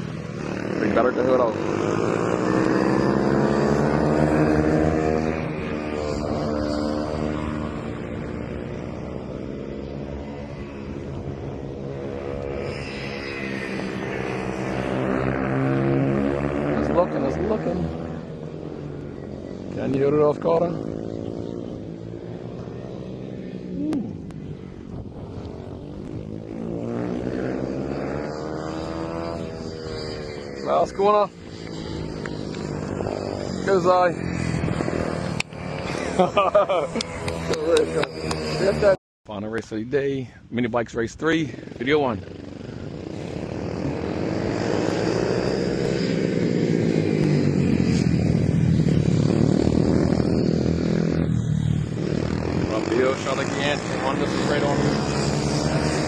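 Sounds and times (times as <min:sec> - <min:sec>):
racing bike engines revving: 0:00.0 - 0:39.0, 0:41.2 - 0:56.0.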